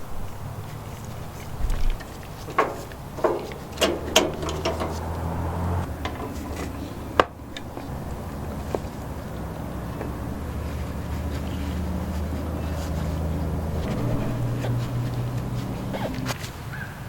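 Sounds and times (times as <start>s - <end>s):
sharp metallic clicks: 2.0s - 8.2s.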